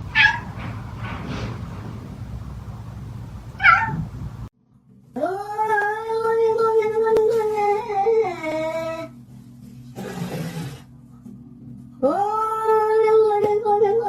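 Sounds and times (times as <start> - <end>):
cat meowing: 0.1 - 0.5, 3.6 - 4.1
cat yowling: 0.1 - 0.5, 3.6 - 4.1.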